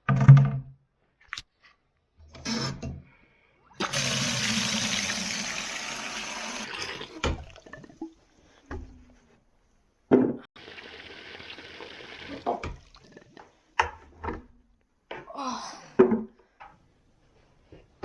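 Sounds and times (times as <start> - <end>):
water gushing into bucket: 3.8 - 8.2, 10.6 - 13.4.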